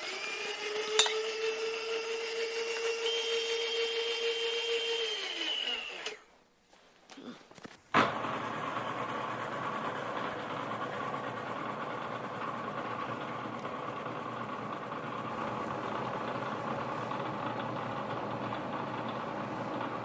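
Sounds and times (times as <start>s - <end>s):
milling machine cutting metal: 0.0s - 6.2s.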